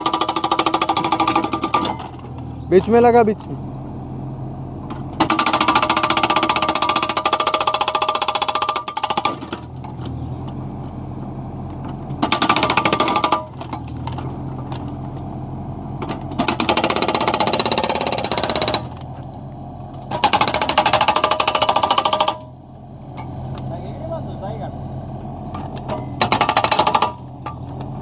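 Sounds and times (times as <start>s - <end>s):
hydraulic breaker hammering: 0.0s - 2.3s, 5.2s - 9.8s, 12.2s - 14.8s, 16.0s - 19.1s, 20.0s - 22.6s, 25.5s - 27.9s
diesel engine running: 0.0s - 28.0s.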